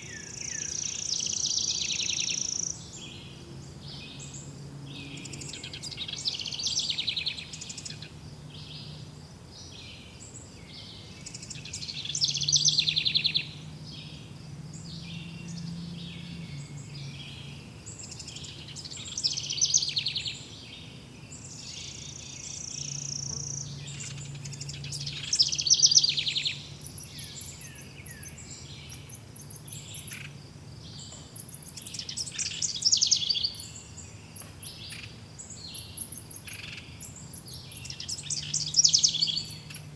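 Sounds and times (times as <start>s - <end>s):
birds singing: 0.0s - 39.9s
high bird chirping: 21.5s - 39.9s.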